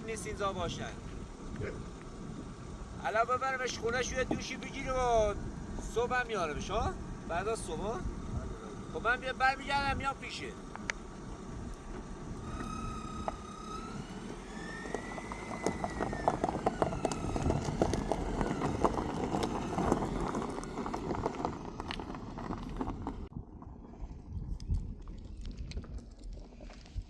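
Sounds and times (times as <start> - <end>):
vehicle on rough track: 0.0 - 27.0
wavering high whine: 4.7 - 20.4.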